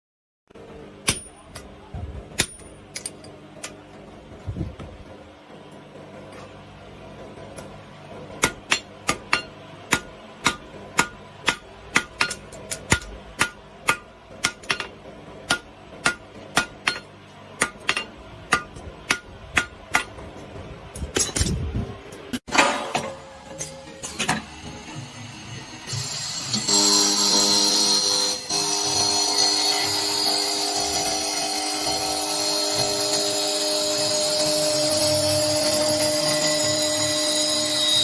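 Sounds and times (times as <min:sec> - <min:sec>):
hammer striking metal: 0:01.0 - 0:01.7, 0:02.4 - 0:03.8, 0:07.5 - 0:21.6, 0:22.4 - 0:25.0.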